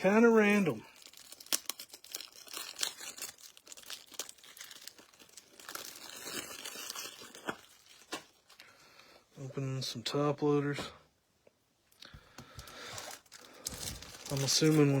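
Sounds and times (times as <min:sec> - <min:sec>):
plastic packaging crinkling and tearing: 0:00.0 - 0:08.8, 0:12.4 - 0:15.0.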